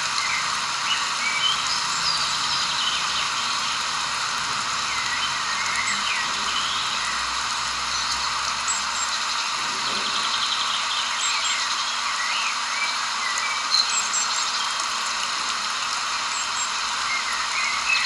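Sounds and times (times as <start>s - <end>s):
steady hiss: 0.0s - 18.0s
birds chirping: 4.7s - 18.0s.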